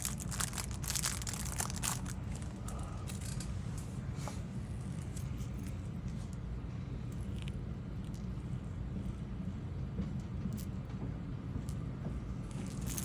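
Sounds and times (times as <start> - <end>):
packaging crinkling and tearing: 0.0 - 3.4, 12.5 - 13.0.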